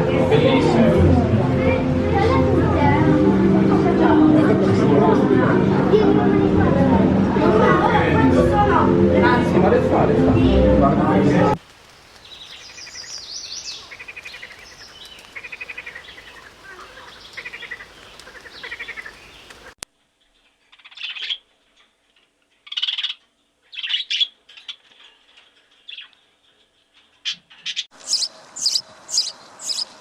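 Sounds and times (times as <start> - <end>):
small birds chirping: 11.7 - 21.4, 27.3 - 30.0
high squeaky calls: 28.0 - 30.0.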